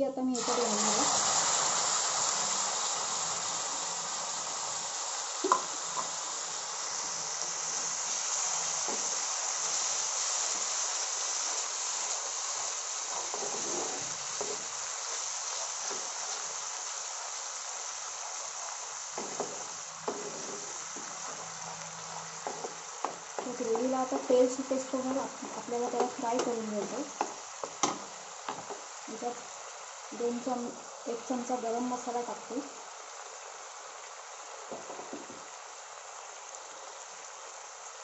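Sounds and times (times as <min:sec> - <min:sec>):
paste sizzling in hot oil: 0:00.2 - 0:38.0
spatula knocking on pan: 0:05.4 - 0:06.1, 0:19.2 - 0:21.4, 0:22.1 - 0:24.5, 0:25.4 - 0:28.8.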